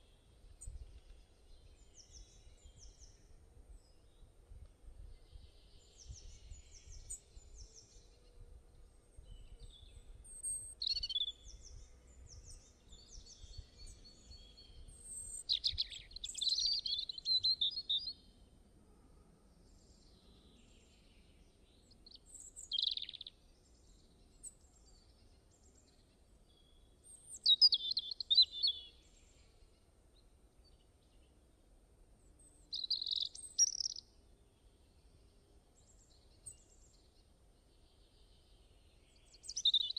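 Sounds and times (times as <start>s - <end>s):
birds chirping and trilling: 22.1s - 23.3s, 27.3s - 29.0s, 32.6s - 34.0s, 37.8s - 39.9s.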